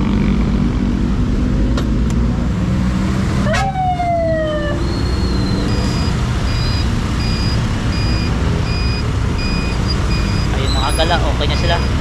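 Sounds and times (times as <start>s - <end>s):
road traffic: 0.0s - 12.0s
police siren whoop: 2.8s - 6.1s.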